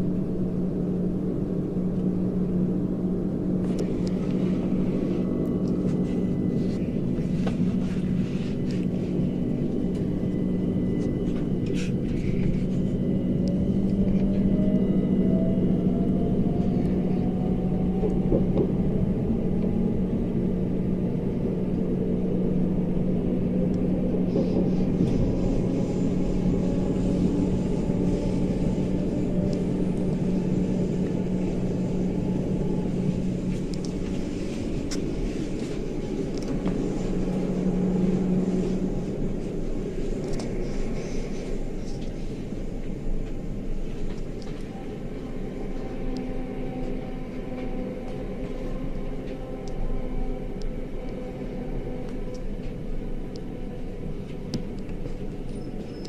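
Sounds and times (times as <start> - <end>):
train wheels rumbling: 0.0 - 56.0.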